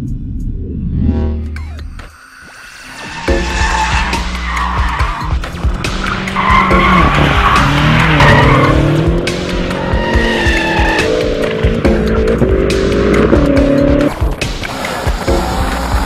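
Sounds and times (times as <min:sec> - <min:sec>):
tyres squealing: 0:02.8 - 0:08.9, 0:09.7 - 0:11.2
car engine revving hard: 0:03.3 - 0:16.0.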